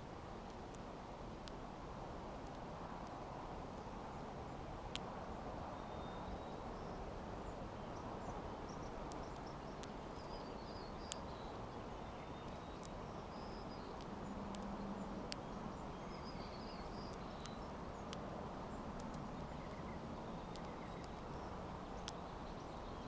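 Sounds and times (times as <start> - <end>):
songbirds chirping: 2.2 - 23.0
sharp clicks: 9.0 - 10.4, 13.8 - 15.5, 19.0 - 19.8, 20.4 - 22.2.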